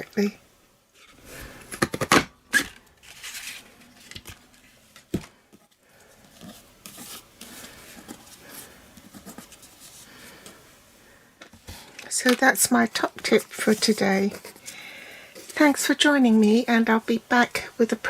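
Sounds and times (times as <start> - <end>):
paper rustling: 3.0 - 5.1, 6.0 - 10.6, 11.7 - 16.6.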